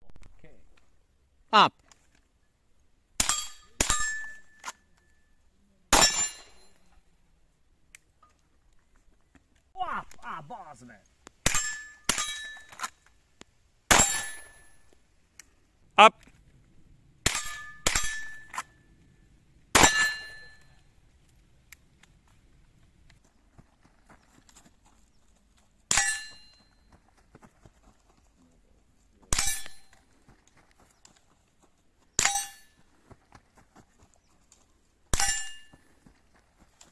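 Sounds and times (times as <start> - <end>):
rifle shots with metallic ring: 3.2 - 4.8, 5.9 - 7.0, 11.4 - 12.9, 13.9 - 14.9, 17.2 - 18.8, 19.7 - 20.8, 25.9 - 26.7, 29.3 - 30.0, 32.2 - 32.8, 35.1 - 35.7
rifle shots with ringing tail: 13.9 - 14.8, 17.2 - 18.7, 19.7 - 20.8.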